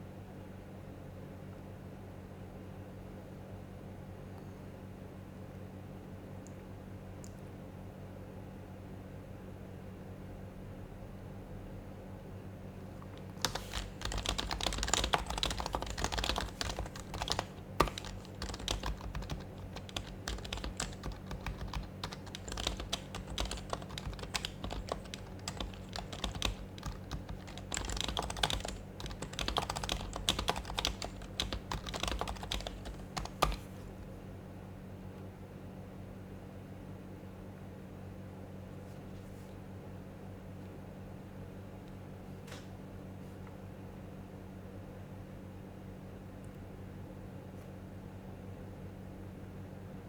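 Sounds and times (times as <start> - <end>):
soft muted keyboard typing: 13.0 - 34.1.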